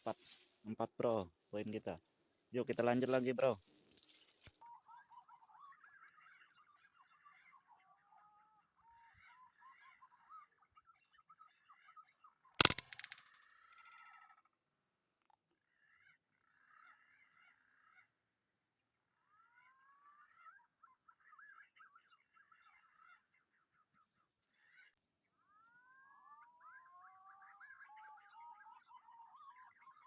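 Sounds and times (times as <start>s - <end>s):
high insect drone: 0.0s - 4.6s, 12.6s - 17.0s
forest birds calling: 0.0s - 14.5s
air rifle shot: 12.6s - 13.2s
brief rattle: 12.6s - 14.0s.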